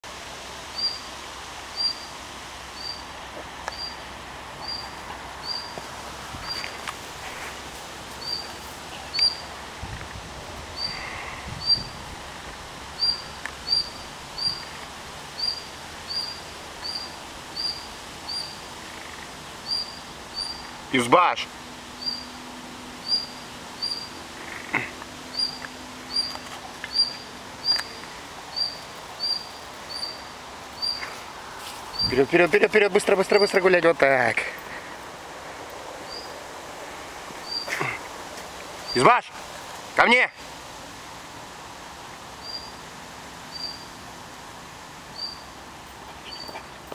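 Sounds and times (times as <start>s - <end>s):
outdoor background noise: 0.0s - 46.9s
small bird calling: 0.7s - 1.0s, 1.7s - 2.1s, 2.8s - 3.1s, 3.7s - 4.0s, 4.6s - 5.8s, 8.2s - 9.5s, 10.7s - 12.0s, 13.0s - 14.7s, 15.3s - 20.8s, 22.0s - 22.4s, 23.0s - 31.2s, 31.9s - 32.2s, 36.1s - 36.4s, 37.4s - 38.0s, 42.4s - 42.8s, 43.5s - 43.9s, 45.1s - 46.8s
faint rustles: 4.8s - 12.7s, 24.3s - 32.4s.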